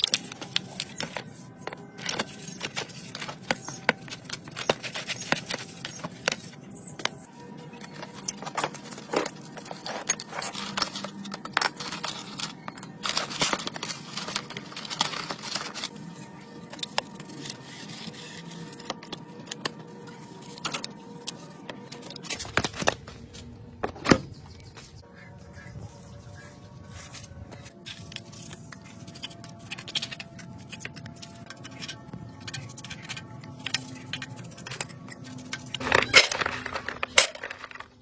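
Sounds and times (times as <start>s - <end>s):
hand tools clinking on metal: 31.5s - 38.0s.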